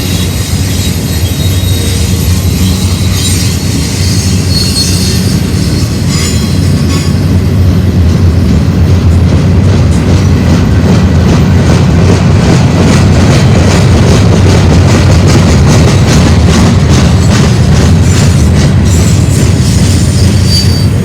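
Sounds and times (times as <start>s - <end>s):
high-pitched wheel squeal: 0.0s - 7.3s, 18.1s - 21.0s
freight train rumbling past: 0.0s - 21.0s.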